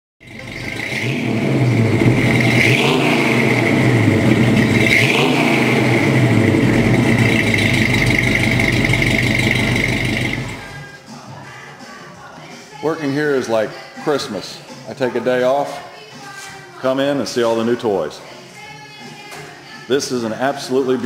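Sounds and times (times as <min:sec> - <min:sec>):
car engine revving: 0:00.2 - 0:11.0
steady high whine: 0:00.2 - 0:11.0.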